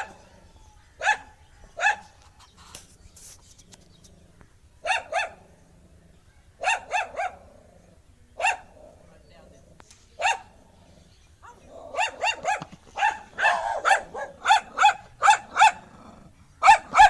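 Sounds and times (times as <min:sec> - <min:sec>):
dog barking: 0:01.0 - 0:02.1, 0:04.8 - 0:05.4, 0:06.6 - 0:07.4, 0:08.4 - 0:08.7, 0:10.2 - 0:10.5, 0:11.4 - 0:15.9, 0:16.6 - 0:17.0.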